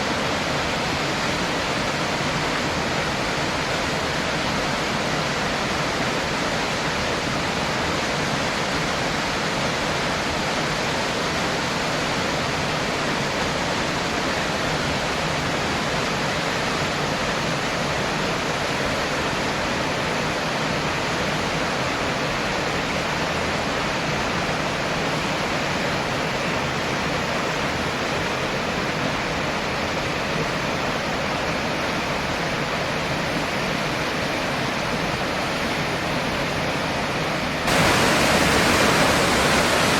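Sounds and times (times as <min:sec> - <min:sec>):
waterfall splashing into pool: 0:32.4 - 0:39.9.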